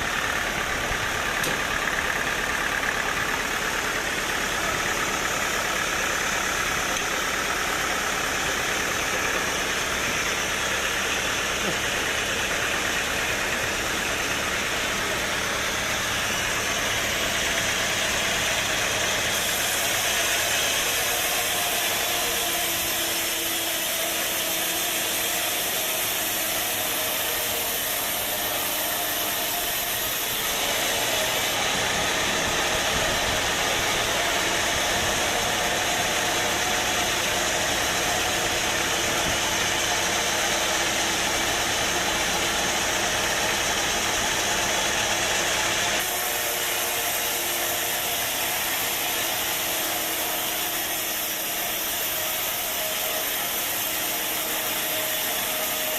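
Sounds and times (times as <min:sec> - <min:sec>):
sawmill machinery drone: 0:00.0 - 0:55.9.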